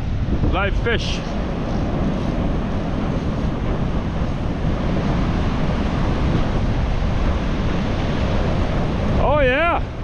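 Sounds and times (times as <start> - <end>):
strong wind buffeting microphone: 0.0 - 10.0
surf breaking on beach: 0.0 - 10.0.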